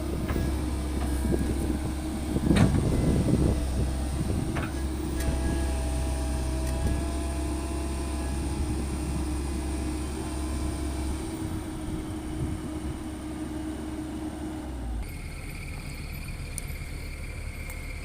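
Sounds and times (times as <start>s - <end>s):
diesel machinery rumbling: 0.0s - 18.0s
steady high whine: 15.0s - 18.0s.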